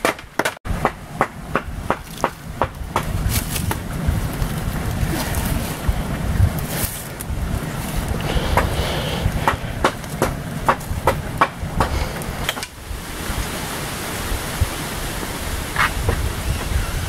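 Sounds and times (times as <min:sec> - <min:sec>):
sharp knocks: 0:00.0 - 0:03.2, 0:09.4 - 0:12.7
wind rumble on microphone: 0:00.7 - 0:17.0
steady hiss: 0:01.0 - 0:17.0.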